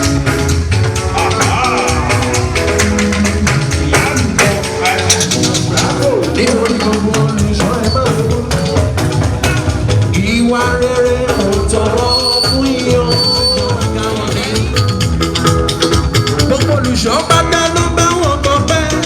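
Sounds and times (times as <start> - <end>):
drum beat: 0.0 - 19.0
person singing: 1.0 - 9.0, 10.1 - 15.0, 16.4 - 19.0.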